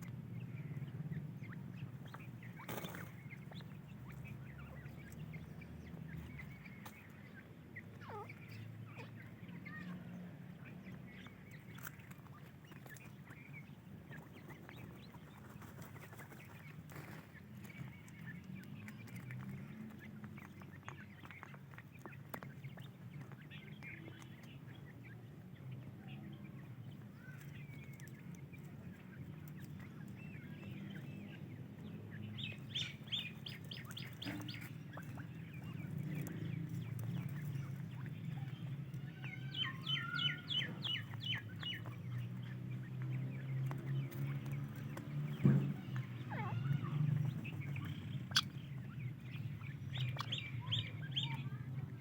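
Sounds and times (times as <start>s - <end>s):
bird chicks chirping: 0.0s - 52.0s.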